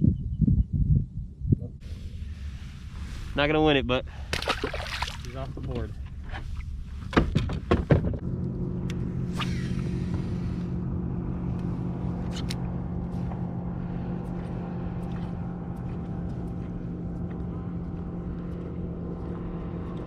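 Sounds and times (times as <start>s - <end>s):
motor humming steadily: 8.2s - 20.0s.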